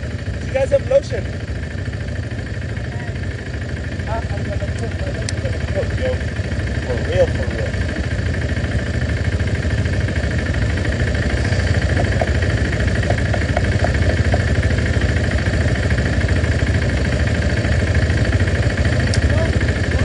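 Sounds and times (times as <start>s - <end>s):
motorcycle engine idling low: 0.0s - 20.0s.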